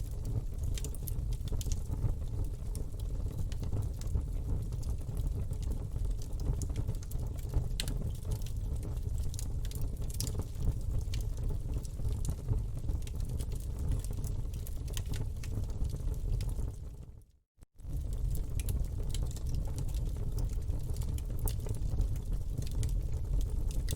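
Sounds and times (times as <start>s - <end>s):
wood crackling and popping: 0.0s - 17.0s, 17.8s - 23.9s
campfire flames rumbling: 0.0s - 17.2s, 17.8s - 23.9s.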